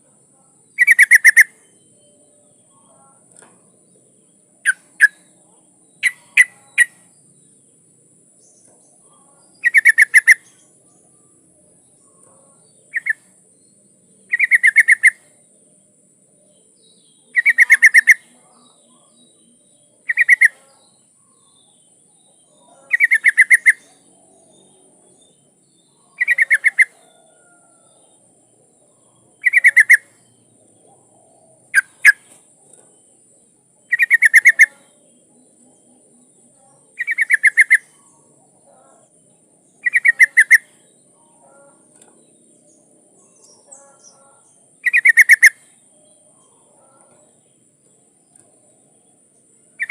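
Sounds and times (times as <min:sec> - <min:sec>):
bulbul singing bubbly phrases: 0:29.3 - 0:30.1.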